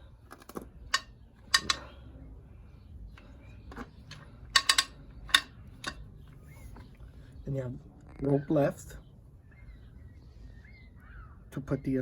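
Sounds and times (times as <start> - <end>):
recoil starter metallic clicks: 0.9 - 1.9, 4.1 - 6.0.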